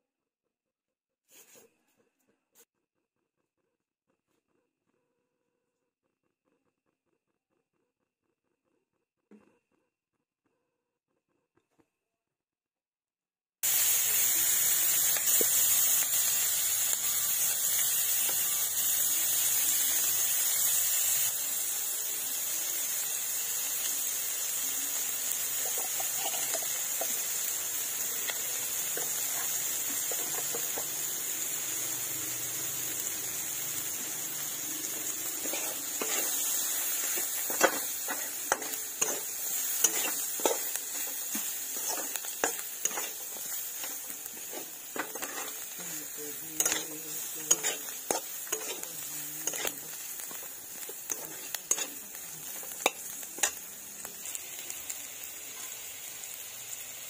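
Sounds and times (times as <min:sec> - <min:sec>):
onions sizzling in hot oil: 0:13.6 - 0:57.0
spatula scraping a pan: 0:25.6 - 0:27.5, 0:34.8 - 0:53.6.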